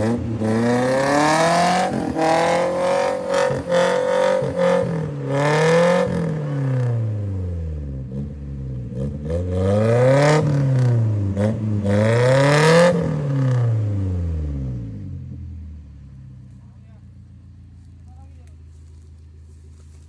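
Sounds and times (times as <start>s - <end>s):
off-road engine revving hard: 0.0s - 15.4s.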